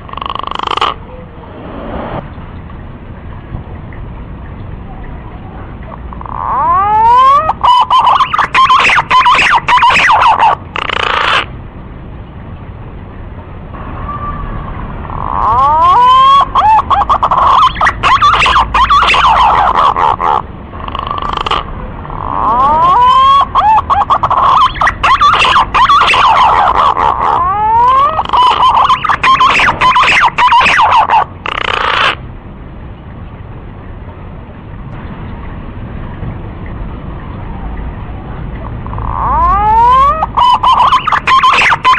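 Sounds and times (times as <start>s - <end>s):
pigeon whistling song: 6.2s - 11.5s, 15.2s - 20.4s, 21.0s - 32.2s, 38.6s - 41.9s.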